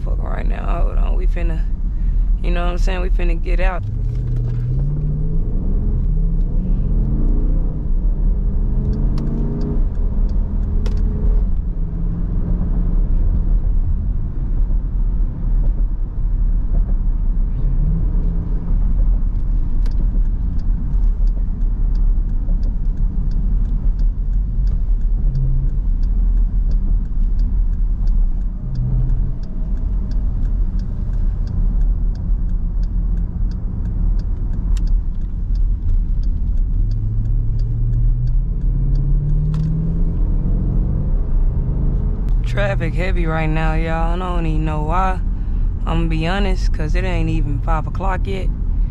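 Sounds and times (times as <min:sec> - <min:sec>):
car engine revving and rumbling: 0:00.0 - 0:48.9
regular light clicking: 0:19.2 - 0:40.4.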